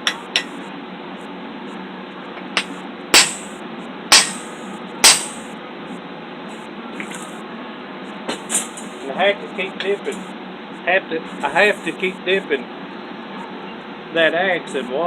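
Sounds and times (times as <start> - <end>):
hammer striking hot steel: 0.0 - 0.6, 2.4 - 5.5
steady background noise: 0.0 - 15.0.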